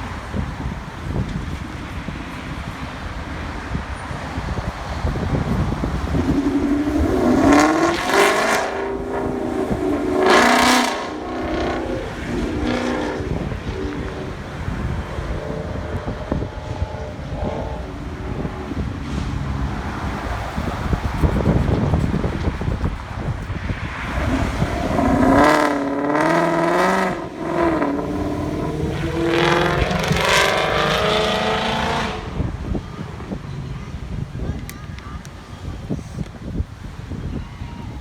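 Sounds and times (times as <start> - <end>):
car engine revving: 2.5 - 33.8
steady low rumble: 3.7 - 30.6.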